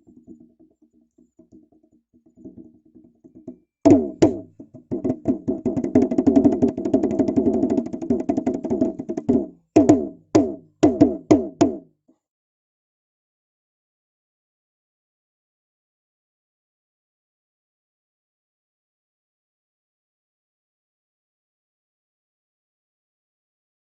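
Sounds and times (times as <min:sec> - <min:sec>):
drumming: 0:03.4 - 0:11.8.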